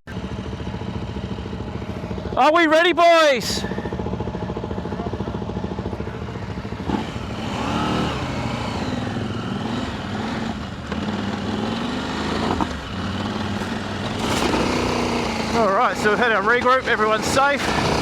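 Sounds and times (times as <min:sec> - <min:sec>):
motorcycle engine revving: 0:03.4 - 0:18.0.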